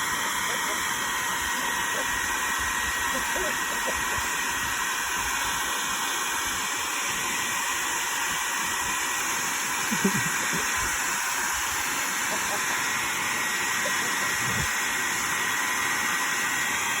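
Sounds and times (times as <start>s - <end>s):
electric appliance hissing: 0.0s - 17.0s.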